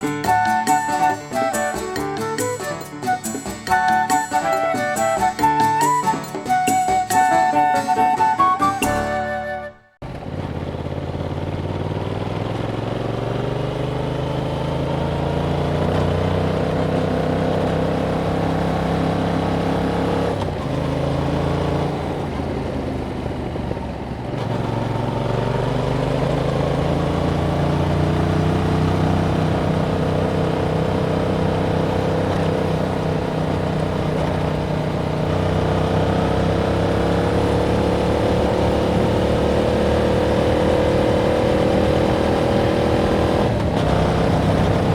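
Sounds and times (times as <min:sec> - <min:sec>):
motorcycle engine pulling: 0:10.0 - 0:44.9.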